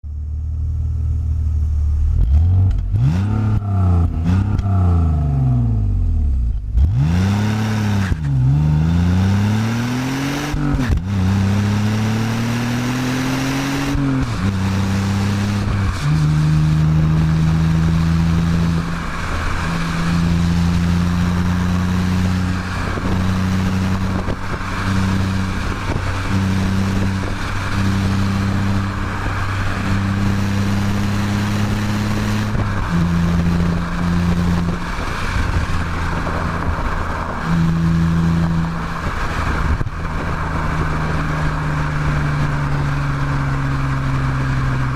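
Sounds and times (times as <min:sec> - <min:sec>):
road noise: 0:00.0 - 0:44.9
car engine revving: 0:00.1 - 0:44.9.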